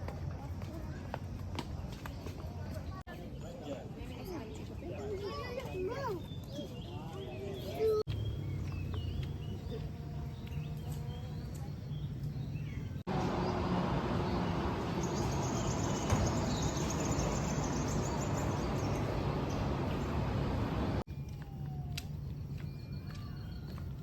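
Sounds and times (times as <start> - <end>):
steady outdoor hum: 8.1 - 21.1
outdoor noise wash: 11.3 - 21.1.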